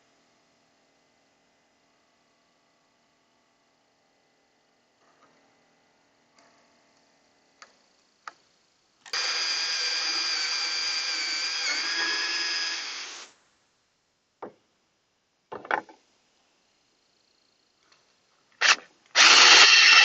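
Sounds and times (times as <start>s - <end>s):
electric drill boring into wood: 9.1s - 13.3s, 18.6s - 20.0s.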